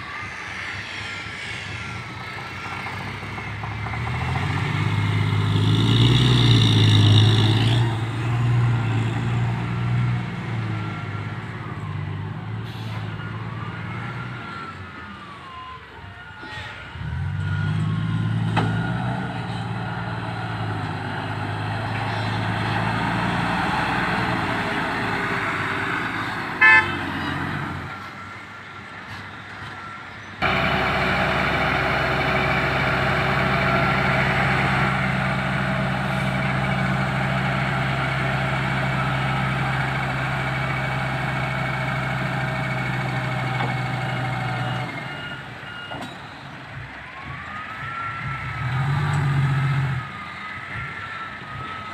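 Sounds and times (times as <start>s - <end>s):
truck diesel engine running: 0.0s - 13.8s, 17.0s - 28.2s, 30.4s - 51.9s
truck horn toot: 26.6s - 27.6s.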